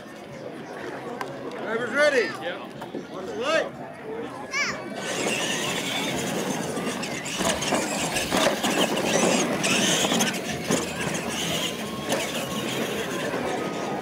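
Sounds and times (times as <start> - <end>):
toy truck motors whining: 4.9 - 14.0
tyres scrabbling on pavement: 5.0 - 14.0.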